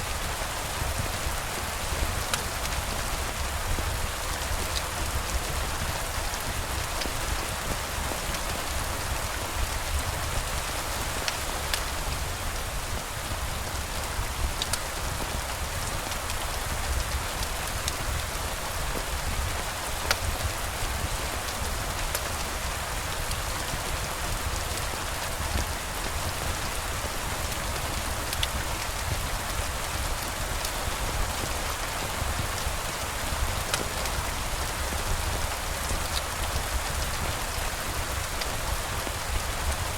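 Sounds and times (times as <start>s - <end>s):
steady rain falling: 0.0s - 39.9s
raindrop ticks: 33.7s - 34.1s.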